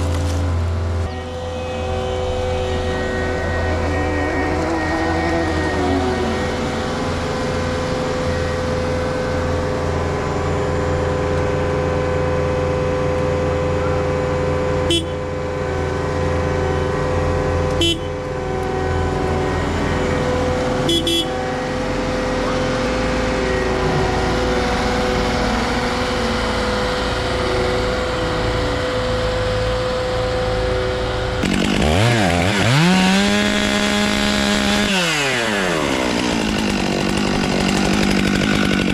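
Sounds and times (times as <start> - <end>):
chainsaw engines running: 1.2 - 11.5, 31.3 - 38.9.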